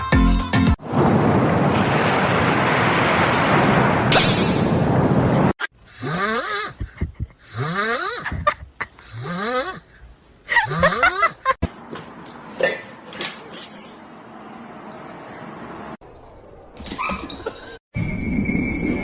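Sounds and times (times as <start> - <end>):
snoring: 5.9 - 8.5, 9.1 - 10.0, 10.6 - 11.4.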